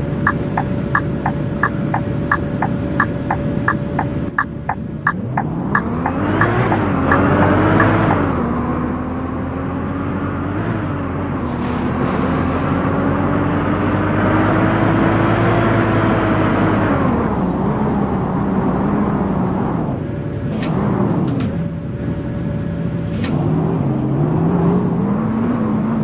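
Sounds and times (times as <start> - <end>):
bus engine pulling away: 0.0 - 26.0
road noise: 0.0 - 26.0
regular clicking: 0.2 - 8.0.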